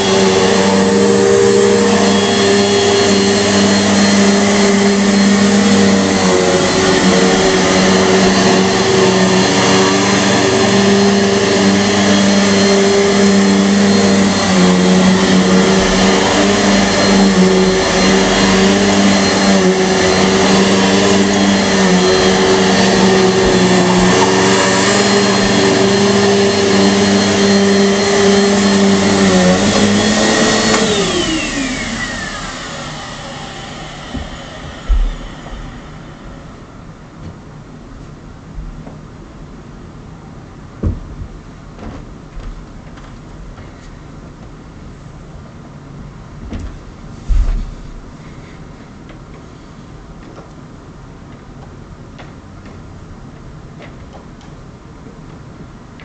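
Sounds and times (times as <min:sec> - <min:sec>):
vacuum motor winding down: 0:00.0 - 0:36.8
vacuum cleaner running: 0:00.0 - 0:38.2, 0:45.7 - 0:49.7.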